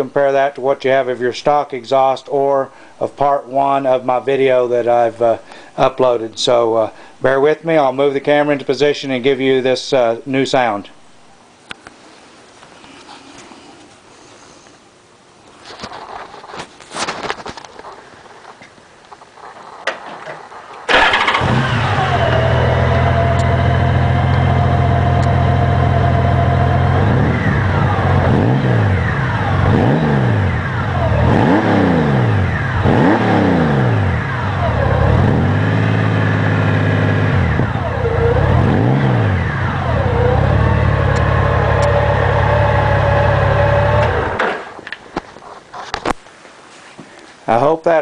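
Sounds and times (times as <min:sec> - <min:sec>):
motorcycle engine starting and idling: 0:20.8 - 0:44.8
engine revving in throttle blips: 0:20.9 - 0:44.7.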